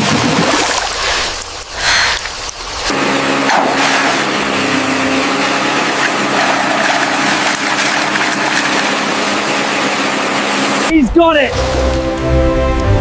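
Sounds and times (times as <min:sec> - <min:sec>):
engine running steadily: 0:01.3 - 0:13.0
loud rushing noise: 0:02.6 - 0:12.0.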